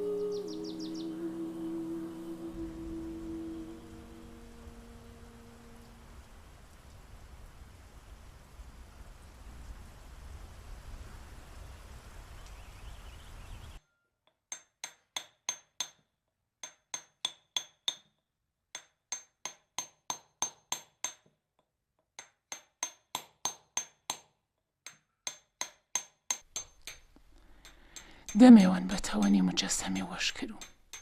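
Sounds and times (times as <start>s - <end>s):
steady hiss: 0.0s - 13.8s
hammer striking chisel on stone: 14.4s - 21.4s, 22.2s - 28.4s.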